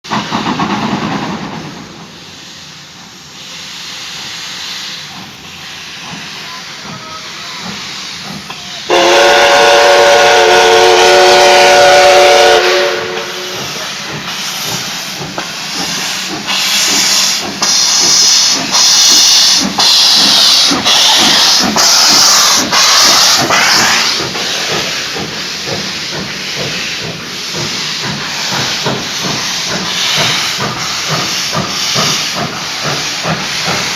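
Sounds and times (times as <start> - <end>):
steam locomotive hissing: 0.0 - 33.9
bursts of steam hiss: 0.1 - 33.9
steam whistle chord: 8.9 - 13.7.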